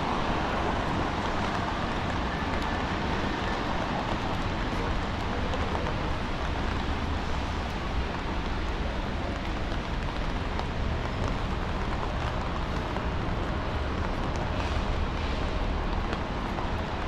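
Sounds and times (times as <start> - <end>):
traffic on wet roads: 0.0 - 17.0.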